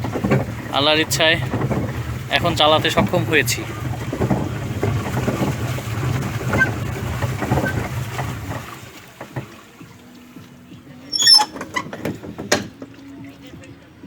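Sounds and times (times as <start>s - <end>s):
water splashes: 0.0s - 14.0s
wind rumble on microphone: 1.4s - 8.7s
light knocks on boat: 11.6s - 13.0s.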